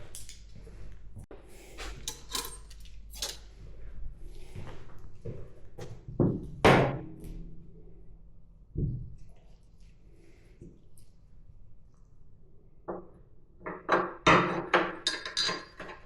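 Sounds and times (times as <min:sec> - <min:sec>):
metal tools knocking and clicking: 0:02.0 - 0:03.4, 0:13.6 - 0:16.0.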